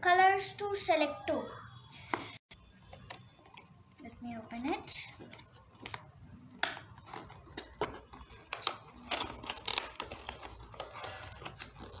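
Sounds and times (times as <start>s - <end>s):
packaging rustling: 6.8s - 12.0s.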